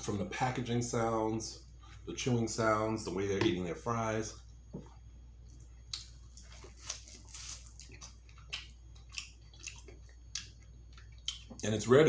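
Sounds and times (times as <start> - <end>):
chewing food: 5.4 - 11.7.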